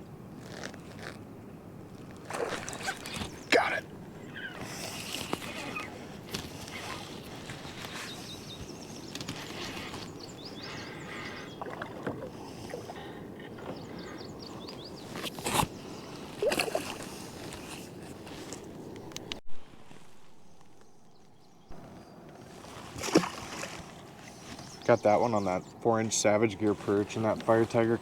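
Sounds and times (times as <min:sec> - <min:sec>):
water sloshing and splashing: 0:02.0 - 0:03.8, 0:11.2 - 0:13.0, 0:22.5 - 0:24.6.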